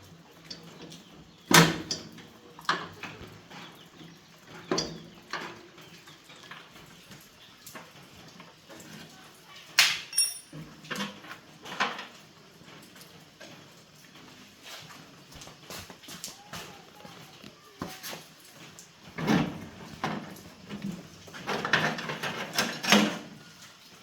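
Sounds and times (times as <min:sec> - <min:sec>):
hand tools knocking and clinking: 0:09.9 - 0:10.6.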